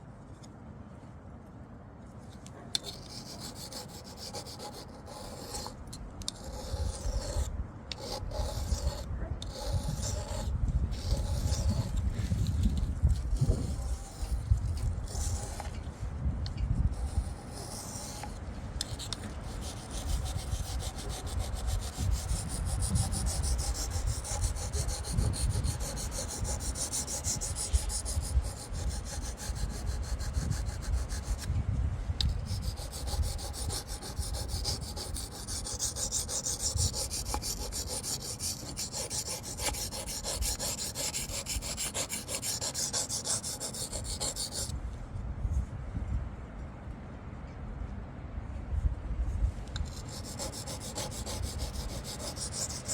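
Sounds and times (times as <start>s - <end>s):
knife scraping on sharpening stone: 32.6s - 44.7s.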